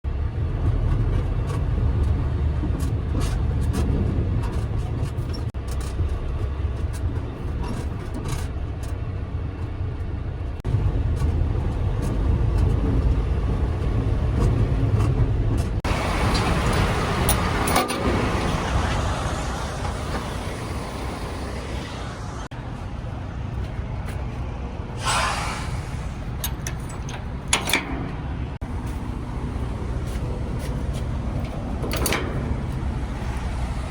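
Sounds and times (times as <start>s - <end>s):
diesel engine rumbling: 0.0s - 33.9s
engine clicks: 0.6s - 20.4s, 25.0s - 33.9s
air brake hiss: 25.0s - 26.5s.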